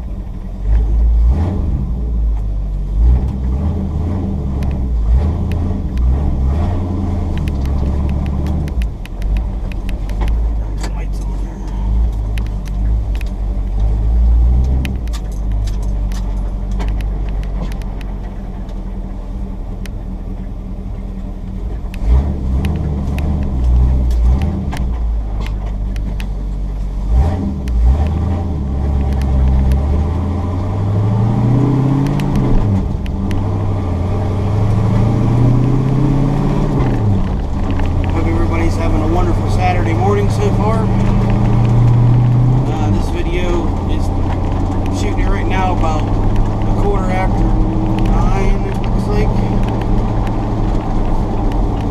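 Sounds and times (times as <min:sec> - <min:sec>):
pickup truck engine accelerating: 0:00.0 - 0:51.9
small clicks and rattles: 0:07.2 - 0:19.2, 0:36.6 - 0:51.9.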